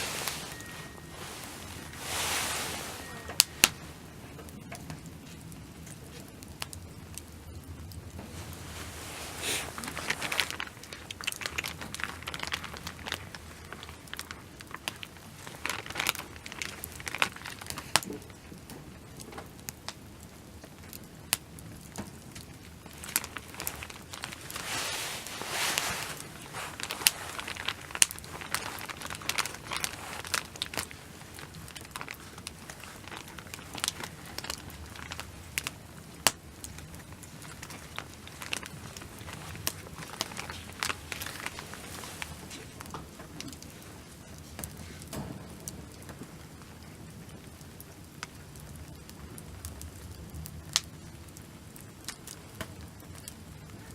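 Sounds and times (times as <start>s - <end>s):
packaging crinkling and rustling: 0.0s - 4.0s, 8.1s - 18.2s, 22.0s - 45.1s.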